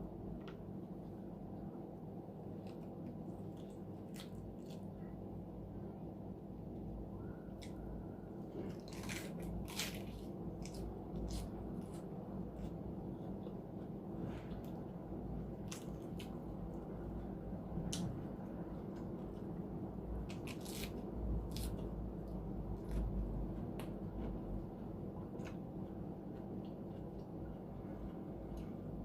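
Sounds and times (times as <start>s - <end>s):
close chewing and wet mouth sounds: 2.5s - 5.1s.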